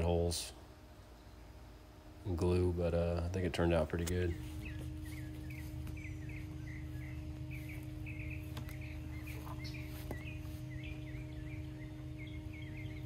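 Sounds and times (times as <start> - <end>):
low mechanical hum: 0.0 - 13.0
bird chirping quickly: 4.1 - 13.0.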